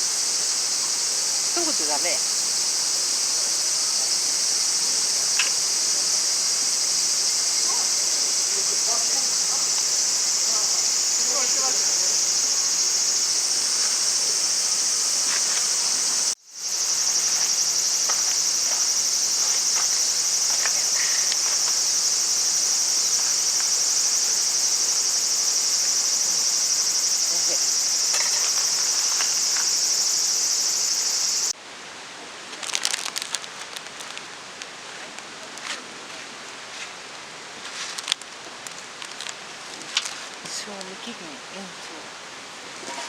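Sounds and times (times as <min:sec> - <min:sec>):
insects chirring: 0:00.0 - 0:31.6, 0:32.6 - 0:35.4, 0:37.0 - 0:43.0.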